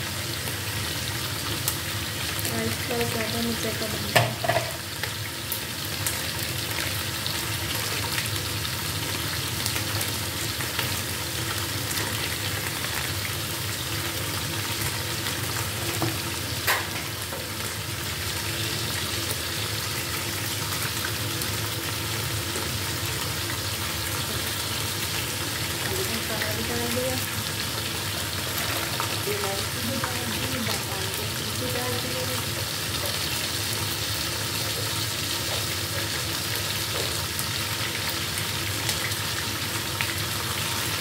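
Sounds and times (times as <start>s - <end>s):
chicken sizzling in oil: 0.0s - 41.0s.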